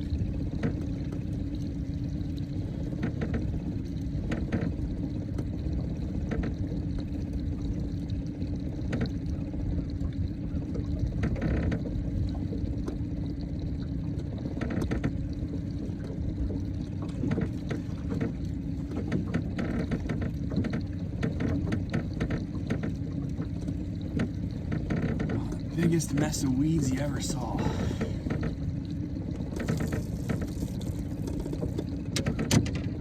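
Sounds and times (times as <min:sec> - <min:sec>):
water sloshing along hull: 0:00.0 - 0:33.0.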